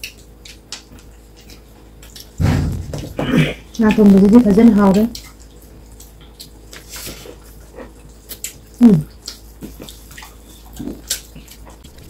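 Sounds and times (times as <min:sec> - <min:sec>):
wet chewing and mouth clicks: 0:00.0 - 0:02.4, 0:04.9 - 0:12.0.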